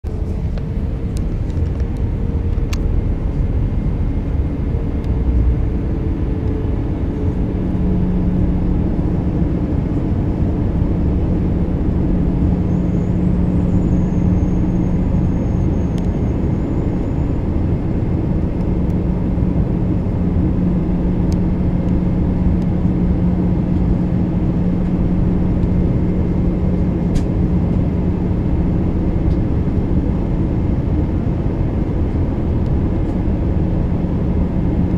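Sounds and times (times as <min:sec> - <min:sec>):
airliner cabin airflow and engine drone: 0:00.0 - 0:34.9
steady low hum: 0:00.1 - 0:34.9.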